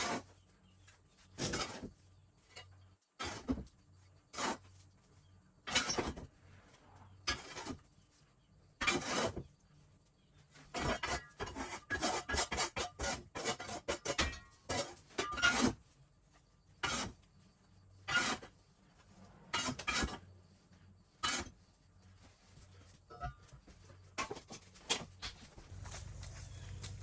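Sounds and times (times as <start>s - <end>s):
things scraping and clinking: 7.1s - 7.8s, 18.0s - 20.4s, 21.2s - 27.0s.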